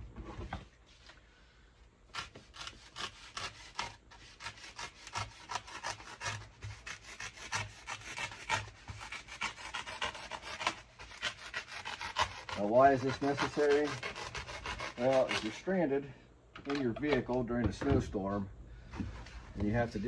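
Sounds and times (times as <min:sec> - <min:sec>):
knife sawing through foam: 0:02.1 - 0:15.8.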